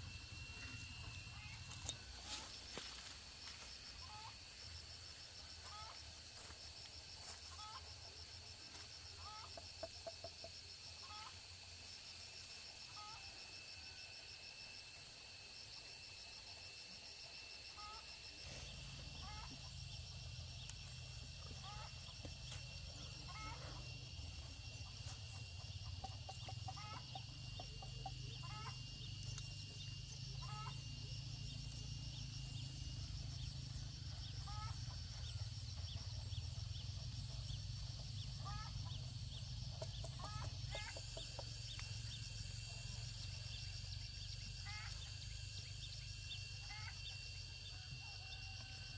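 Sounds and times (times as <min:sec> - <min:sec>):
steady high-pitched tones: 0:00.0 - 0:11.1
chickens clucking: 0:09.2 - 0:11.4, 0:21.5 - 0:29.4, 0:38.4 - 0:41.9.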